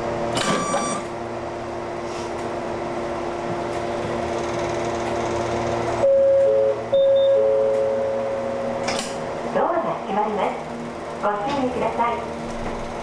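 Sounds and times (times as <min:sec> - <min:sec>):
loud held tone: 0:00.5 - 0:01.1, 0:06.0 - 0:08.8
lower second tone: 0:06.0 - 0:08.8.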